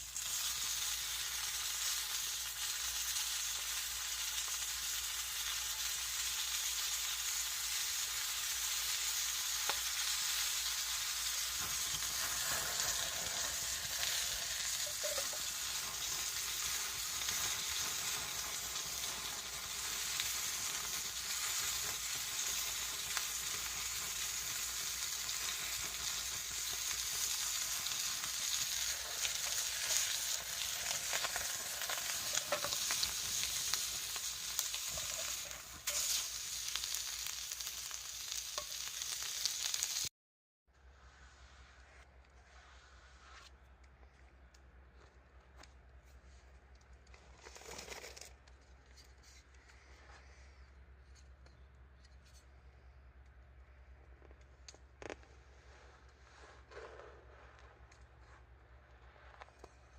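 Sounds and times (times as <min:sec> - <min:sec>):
food sizzling in a pan: 0:00.0 - 0:40.1.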